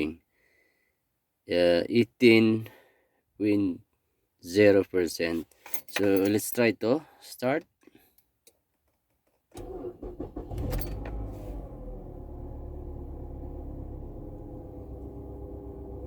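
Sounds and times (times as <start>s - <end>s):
car engine starting and idling: 9.6s - 16.0s.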